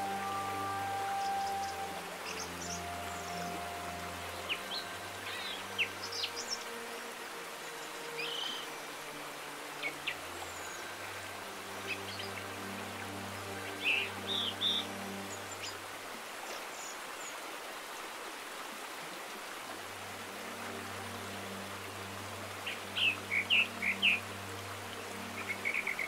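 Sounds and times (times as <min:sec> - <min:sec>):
birds chirping: 0:00.0 - 0:06.8, 0:11.8 - 0:15.8.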